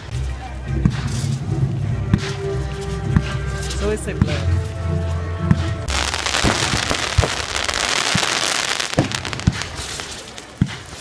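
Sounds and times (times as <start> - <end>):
fireworks crackling: 5.8 - 11.0
fireworks sharp bangs: 5.9 - 11.0.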